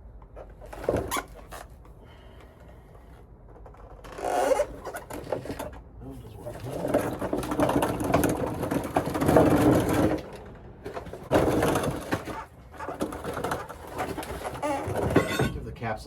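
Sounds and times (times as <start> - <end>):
rapid mechanical rattling: 3.7 - 15.6.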